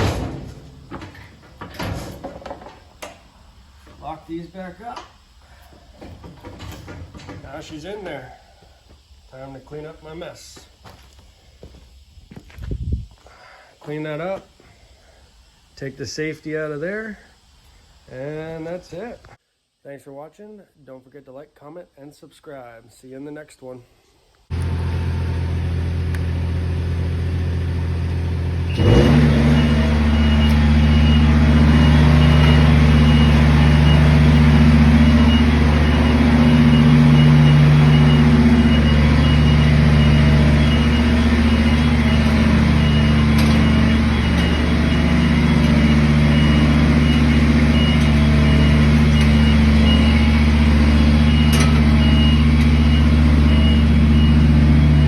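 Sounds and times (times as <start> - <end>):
lift engine running: 24.5 - 55.0
fast high beeping alarm: 28.8 - 55.0.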